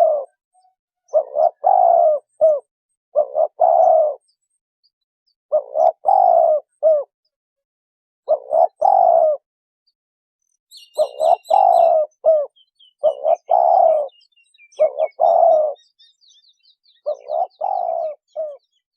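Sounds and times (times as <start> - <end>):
dove cooing: 0.0 - 4.4, 5.5 - 7.1, 8.3 - 9.4, 10.8 - 16.0, 16.8 - 18.8
faint high bird chirps: 0.0 - 7.4, 10.4 - 18.9.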